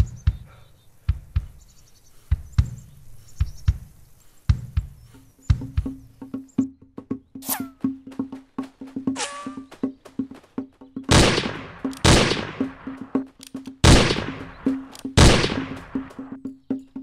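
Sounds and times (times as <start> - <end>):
wood-block beat in music: 3.4 - 17.0.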